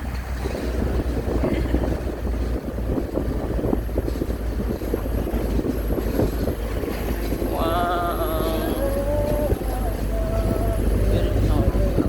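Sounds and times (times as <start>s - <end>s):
vehicle low rumble: 0.0s - 12.0s
wind buffeting microphone: 0.0s - 12.0s.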